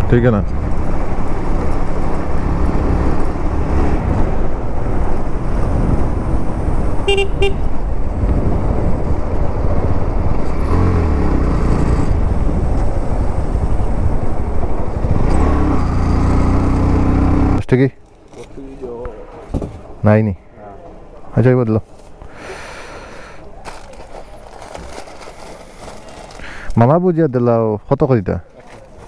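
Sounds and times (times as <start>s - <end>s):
motorcycle engine: 0.0s - 17.6s
wind and road noise: 0.0s - 29.0s
horn beeping: 7.0s - 7.8s.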